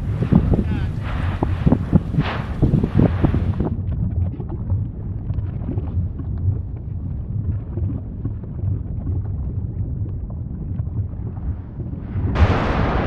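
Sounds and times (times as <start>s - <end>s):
dense crackling: 0.0s - 3.8s, 10.9s - 13.0s
low volcanic rumble: 0.0s - 13.0s.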